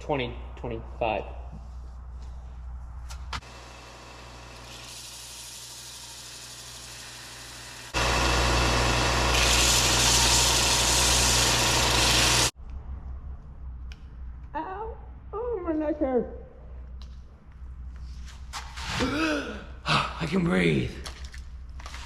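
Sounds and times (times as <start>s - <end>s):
electric sander sanding steel: 3.4s - 12.5s.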